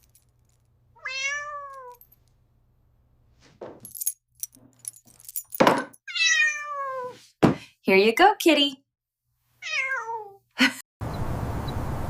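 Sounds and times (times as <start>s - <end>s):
light jingling and clinking: 0.0s - 0.7s, 3.8s - 6.0s
cat meowing: 1.0s - 2.0s, 6.1s - 7.2s, 9.6s - 10.4s.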